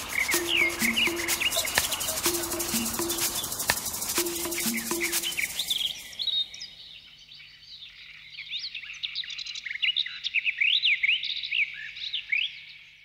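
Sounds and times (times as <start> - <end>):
birds chirping: 0.0 - 8.8.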